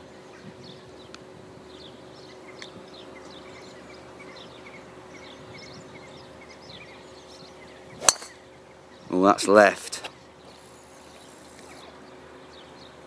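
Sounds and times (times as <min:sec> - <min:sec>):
faint steady hum: 0:00.0 - 0:13.0
small birds chirping: 0:00.0 - 0:13.0.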